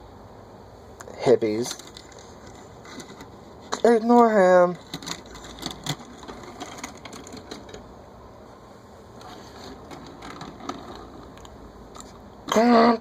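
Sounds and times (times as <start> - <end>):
toy cars clicking on a surface: 1.7 - 7.8, 9.2 - 12.6.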